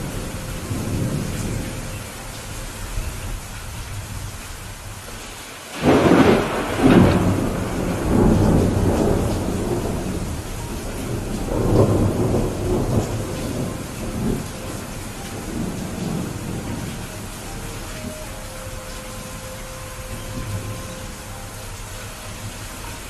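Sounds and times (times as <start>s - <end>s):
steady rain: 0.0s - 23.0s
thunder cracking and rumbling: 5.7s - 19.0s.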